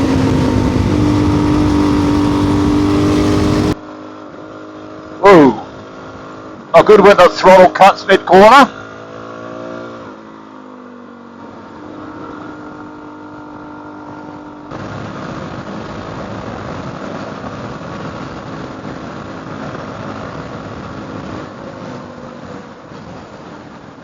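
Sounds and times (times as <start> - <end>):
loud rushing noise: 0.0 - 3.8
motorcycle engine: 0.0 - 24.0.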